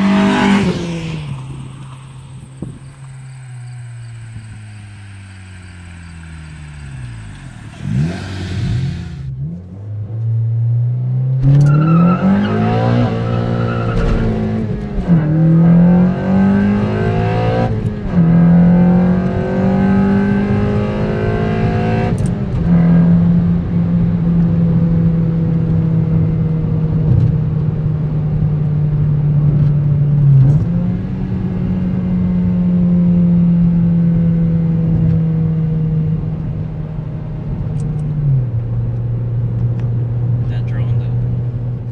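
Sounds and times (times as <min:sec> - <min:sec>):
car engine accelerating through gears: 0:00.0 - 0:41.9.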